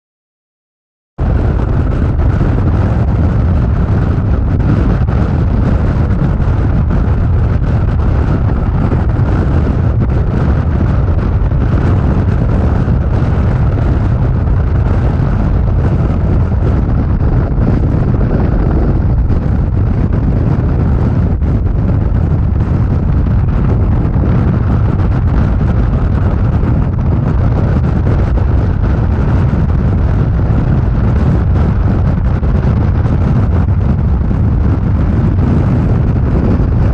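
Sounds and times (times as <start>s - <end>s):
motorcycle engine rumble: 1.2s - 36.9s
wind buffeting microphone: 1.2s - 36.9s.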